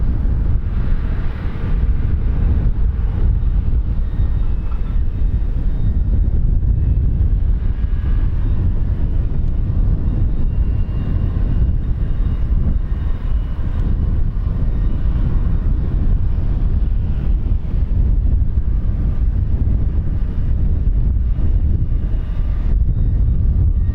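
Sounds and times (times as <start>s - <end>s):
aircraft engines rumbling: 0.0s - 23.9s
faint high engine whine: 0.0s - 23.9s.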